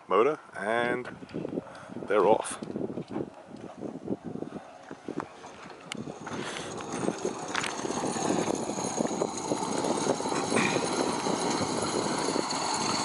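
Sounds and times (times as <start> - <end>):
cable pulley rattling: 4.7 - 13.0.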